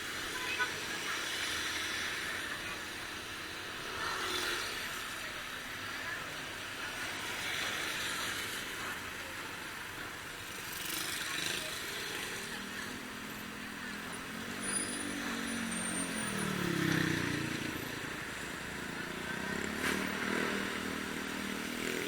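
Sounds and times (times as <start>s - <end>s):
vehicles swishing past on wet road: 13.9s - 22.0s.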